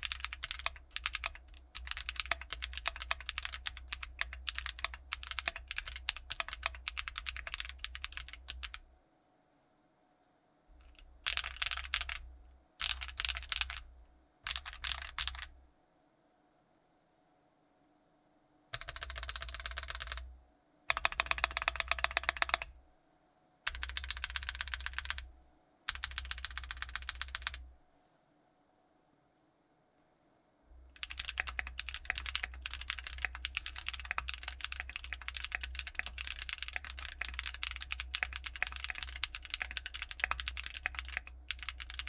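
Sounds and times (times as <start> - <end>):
typing on mechanical keyboard: 0.0 - 8.8, 10.8 - 12.2, 12.8 - 13.9, 14.5 - 15.5, 18.8 - 20.3, 20.9 - 22.7, 23.7 - 25.3, 25.9 - 27.6, 30.9 - 42.0.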